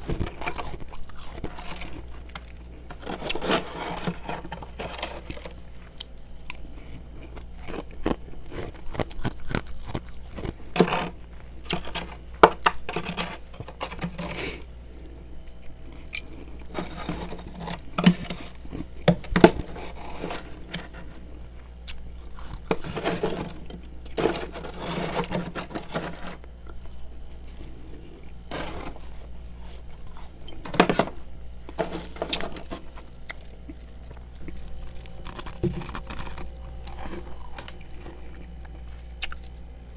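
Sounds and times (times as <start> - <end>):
frost scraped off freezer: 0.0 - 5.9, 8.6 - 15.2, 15.9 - 26.5, 27.3 - 38.5.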